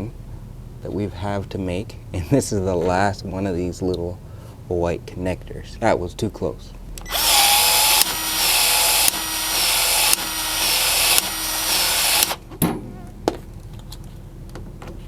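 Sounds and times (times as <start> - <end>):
small power tool motor: 7.0 - 12.4.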